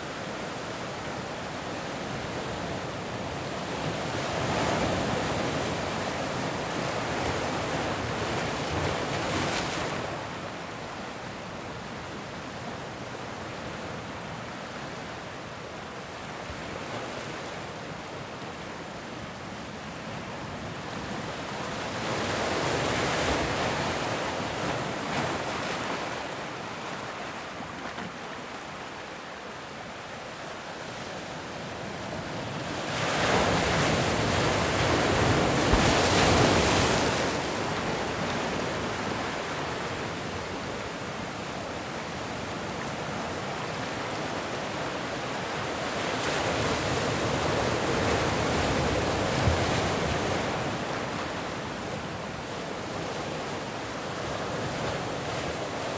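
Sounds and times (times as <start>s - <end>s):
ocean waves breaking on shore: 16.2s - 55.9s.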